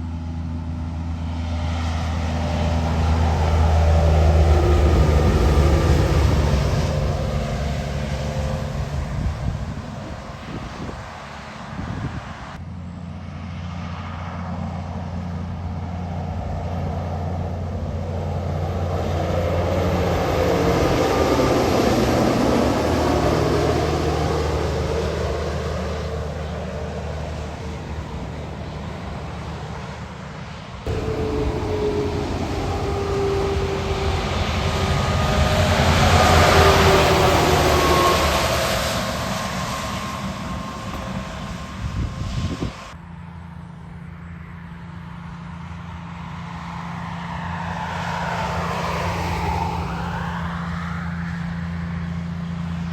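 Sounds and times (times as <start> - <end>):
tyre and road noise: 0.0 - 12.6, 15.9 - 43.0
truck whine: 0.0 - 52.9
trucks driving past: 0.0 - 52.9.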